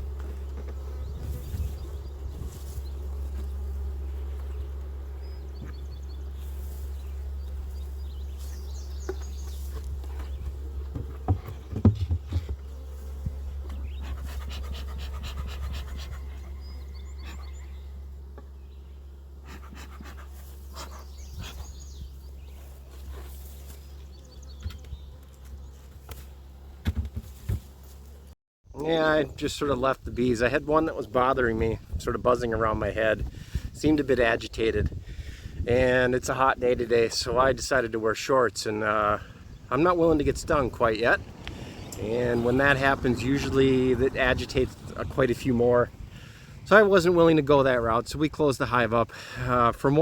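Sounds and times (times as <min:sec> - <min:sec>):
honeybees buzzing: 0:00.0 - 0:50.0
handling knocks and rustles: 0:08.3 - 0:13.9, 0:24.6 - 0:28.3
person breathing hard: 0:46.1 - 0:46.6.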